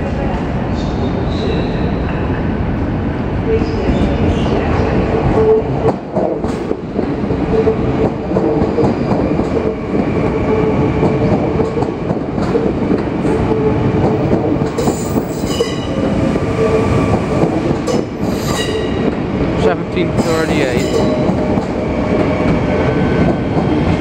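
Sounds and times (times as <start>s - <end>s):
electric train passing: 0.0s - 24.0s
wheels squealing on rail: 14.8s - 17.0s, 17.9s - 19.1s.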